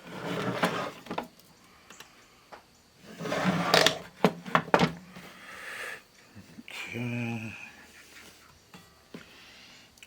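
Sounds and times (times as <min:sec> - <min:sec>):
plastic scraping: 0:00.0 - 0:01.3, 0:03.0 - 0:05.0.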